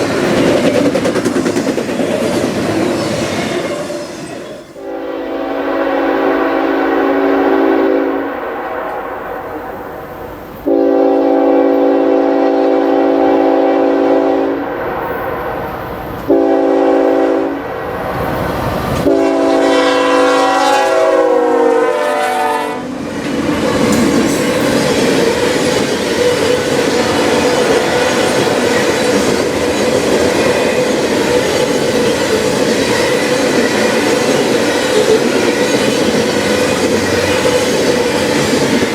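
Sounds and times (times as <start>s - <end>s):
train cars rumbling by: 0.0s - 38.9s
locomotive air horn: 4.8s - 9.9s, 10.6s - 14.8s, 16.3s - 17.7s, 19.0s - 22.9s.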